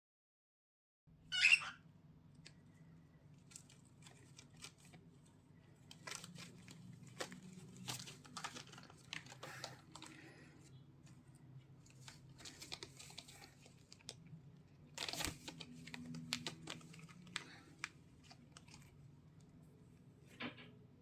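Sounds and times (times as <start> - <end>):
harsh bird squawk: 1.3 - 1.9
scratching and crinkling: 2.4 - 19.6.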